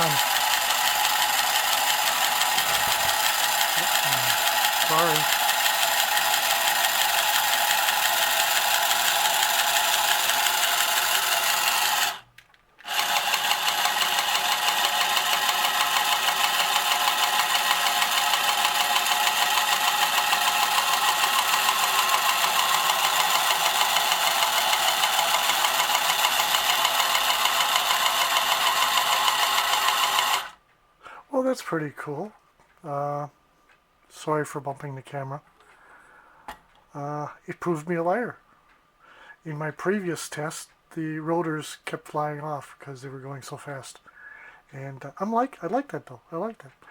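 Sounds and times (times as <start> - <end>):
toy motor rattly buzz: 0.0 - 30.6.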